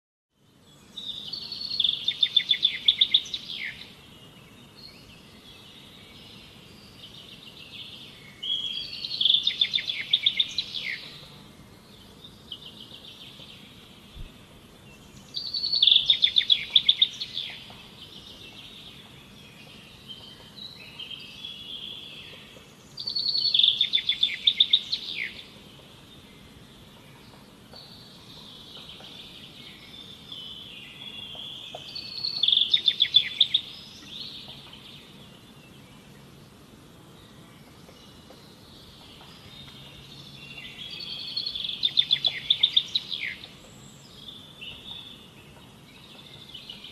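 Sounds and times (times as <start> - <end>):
soft bird calls: 37.2 - 46.9.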